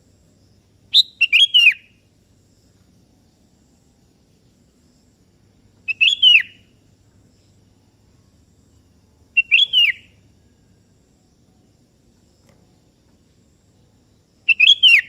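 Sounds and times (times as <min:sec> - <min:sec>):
bird singing: 0:00.9 - 0:02.0, 0:05.8 - 0:06.8, 0:09.3 - 0:11.7, 0:12.4 - 0:15.0.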